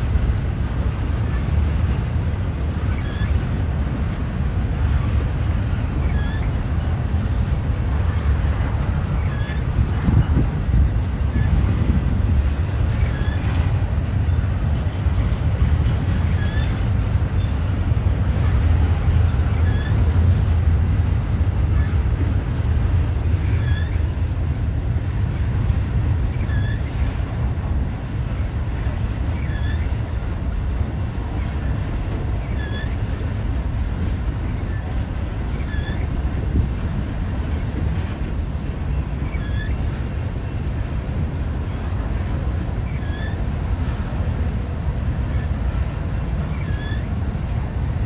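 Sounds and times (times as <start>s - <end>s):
freight train rumbling past: 0.0s - 48.0s
high-pitched squeaks: 39.2s - 40.0s.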